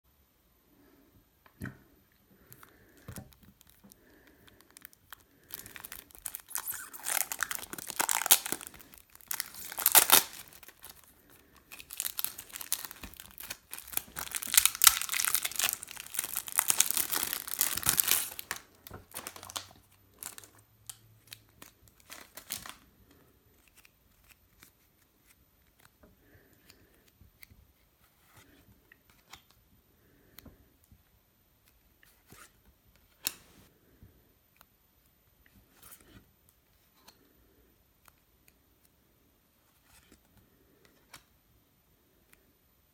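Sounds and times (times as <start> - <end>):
packaging being torn open: 4.6 - 20.5, 21.3 - 22.8.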